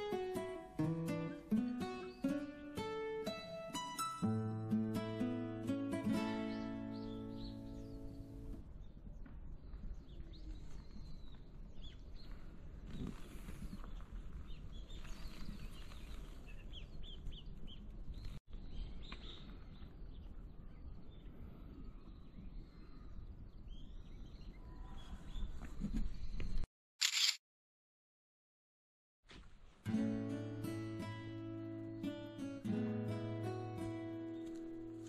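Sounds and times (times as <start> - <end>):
small birds chirping: 6.4 - 26.6, 31.0 - 35.0.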